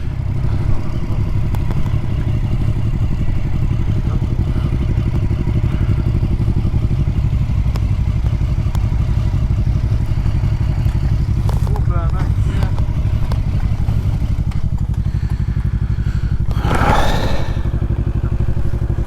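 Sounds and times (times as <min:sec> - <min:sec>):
motorcycle engine running at low revs: 0:00.0 - 0:19.0.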